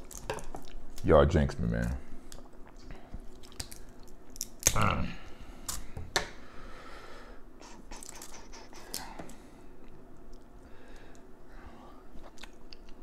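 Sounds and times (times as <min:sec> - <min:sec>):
wet chewing and smacking: 0:00.0 - 0:01.1, 0:02.2 - 0:04.7, 0:12.2 - 0:13.0.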